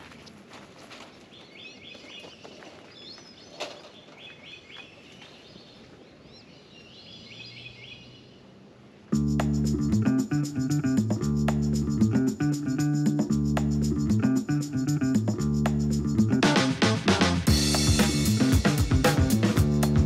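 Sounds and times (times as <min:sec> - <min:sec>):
songbird chirping: 0:00.0 - 0:15.1
outdoor background noise: 0:00.0 - 0:20.0
guitar-led music: 0:09.1 - 0:20.0.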